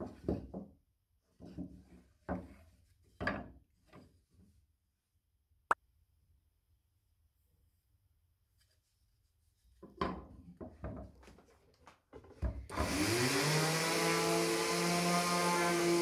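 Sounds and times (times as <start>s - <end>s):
electric power tool whining: 12.7s - 16.0s.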